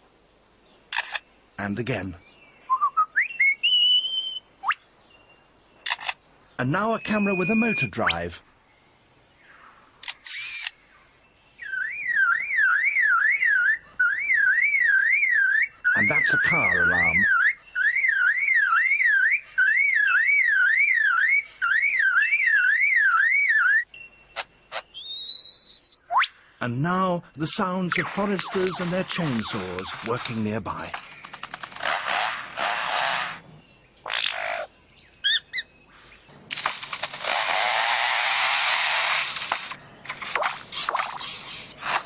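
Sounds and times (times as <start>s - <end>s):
bird rising chirps: 2.4s - 8.4s, 9.4s - 41.8s
bird mimicking car alarm: 6.6s - 8.3s, 11.6s - 26.4s
lyrebird harsh buzzing: 10.0s - 10.8s, 27.6s - 35.6s, 36.5s - 42.0s.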